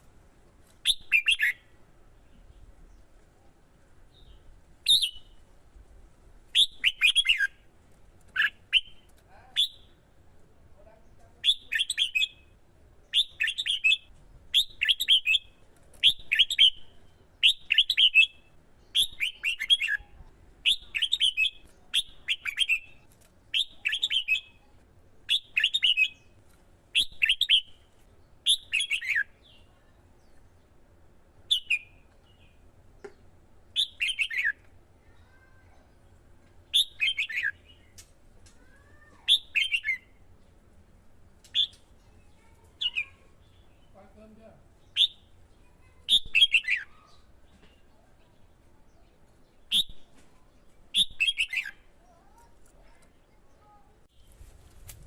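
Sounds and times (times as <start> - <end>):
bulbul chirping song: 0.8 - 1.8, 4.1 - 5.5, 6.5 - 7.7, 8.3 - 10.1, 11.4 - 30.8, 31.4 - 34.7, 36.6 - 38.1, 39.3 - 40.2, 41.4 - 48.0, 48.8 - 50.2, 50.8 - 52.0.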